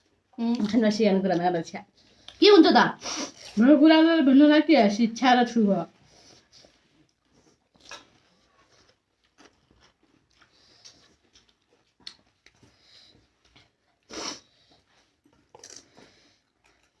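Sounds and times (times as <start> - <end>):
crunching and chewing: 6.4 - 17.0.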